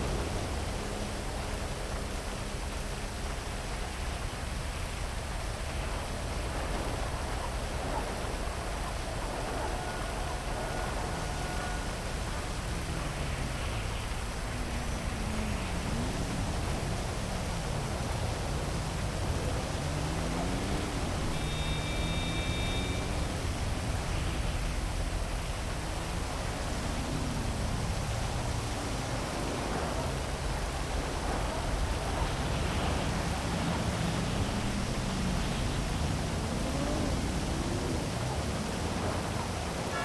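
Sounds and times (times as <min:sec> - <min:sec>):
heavy rain hissing: 0:00.0 - 0:40.0
traffic engines passing: 0:00.0 - 0:40.0
brief high tone: 0:21.2 - 0:23.6.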